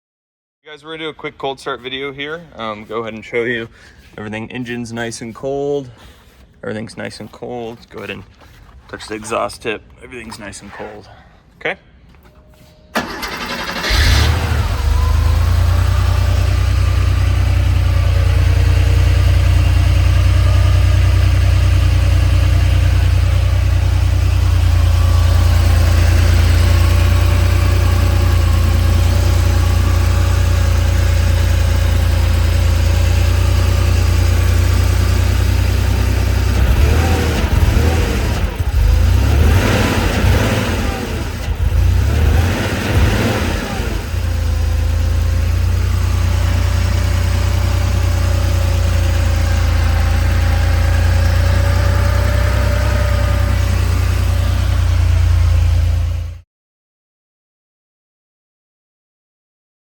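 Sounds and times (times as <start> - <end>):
car engine idling and revving: 13.0 - 56.4.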